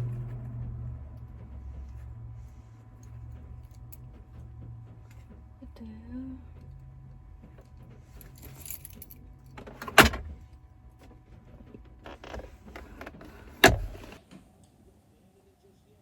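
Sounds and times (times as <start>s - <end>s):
handling noise: 6.6s - 14.2s
car keys jangling: 7.5s - 10.4s.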